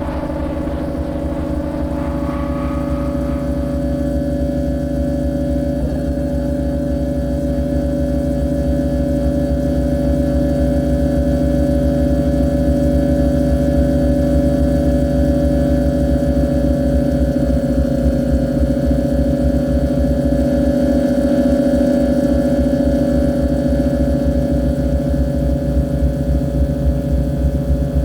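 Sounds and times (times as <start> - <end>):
harsh noise drone: 0.0 - 5.2.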